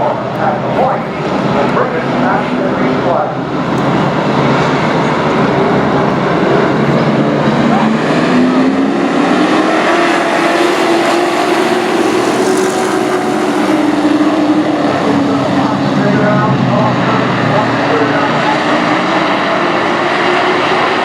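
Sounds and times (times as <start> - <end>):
race truck engines running hard: 0.0 - 21.0.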